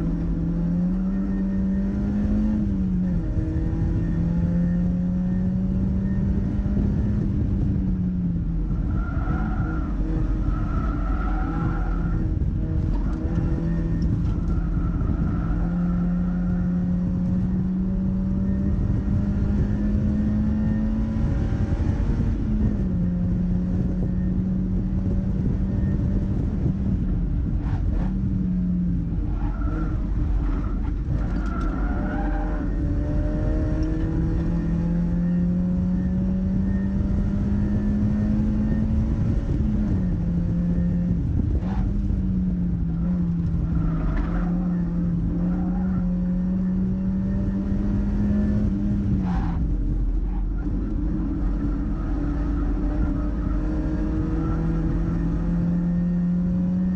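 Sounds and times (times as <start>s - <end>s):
road noise: 0.0s - 56.9s
wind noise: 0.0s - 56.9s
car engine revving hard: 29.8s - 42.3s, 42.9s - 56.9s.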